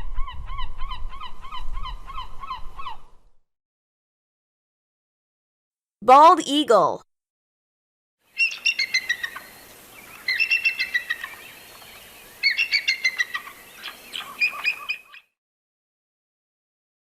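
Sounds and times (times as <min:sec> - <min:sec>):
eagle piping chitters: 0:08.4 - 0:15.2.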